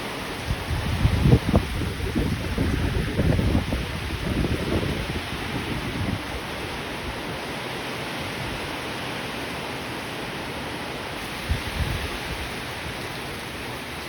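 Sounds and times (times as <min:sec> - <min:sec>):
steady rain falling: 0:00.0 - 0:14.0
low gusty rumbling: 0:00.4 - 0:07.2, 0:11.4 - 0:13.4.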